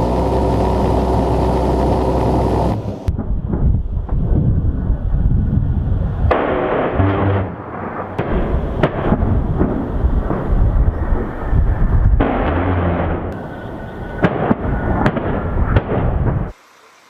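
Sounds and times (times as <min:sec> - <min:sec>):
low rumble: 0:00.0 - 0:16.5
rotary cannon firing burst: 0:06.2 - 0:16.5
sharp cracks: 0:06.3 - 0:13.5, 0:14.2 - 0:16.5.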